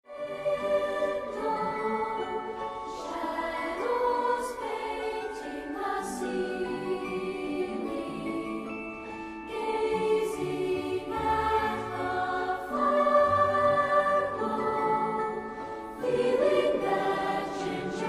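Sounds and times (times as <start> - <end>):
choir singing sustained chords: 0.1 - 18.0.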